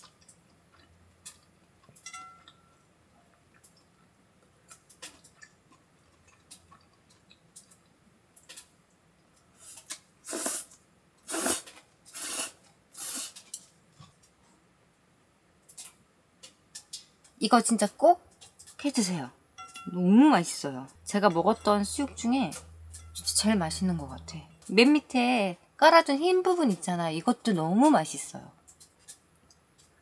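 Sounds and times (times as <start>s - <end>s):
person chewing food: 0.0s - 14.4s.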